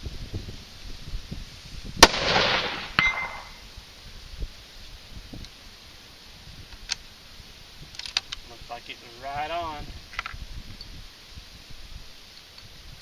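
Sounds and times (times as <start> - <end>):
wind buffeting microphone: 0.0 - 5.6, 6.3 - 13.0
rifle shot echoing: 2.0 - 3.6
sharp ringing tick: 3.0 - 3.6.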